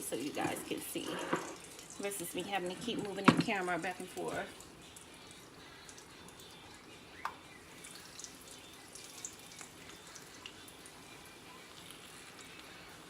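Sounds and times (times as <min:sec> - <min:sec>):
oil crackling in a pan: 0:00.0 - 0:13.0.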